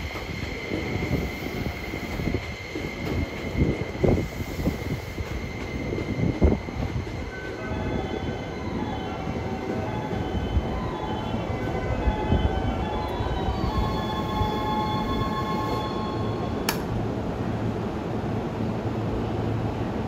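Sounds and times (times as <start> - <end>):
sharp click: 16.6 - 16.9.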